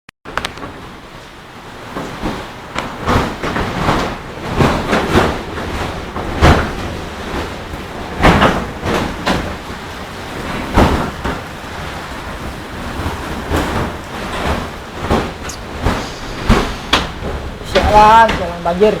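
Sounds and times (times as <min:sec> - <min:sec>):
wind gusting across microphone: 0:00.7 - 0:19.0.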